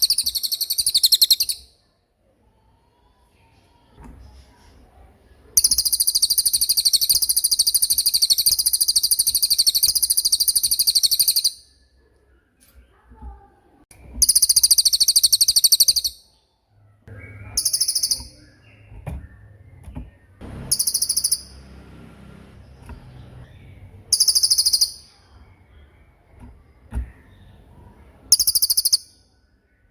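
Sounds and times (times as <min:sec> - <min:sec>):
songbird rapid rolling trill: 0:00.0 - 0:01.6, 0:05.6 - 0:11.6, 0:14.2 - 0:16.2, 0:20.5 - 0:22.5, 0:24.1 - 0:25.2.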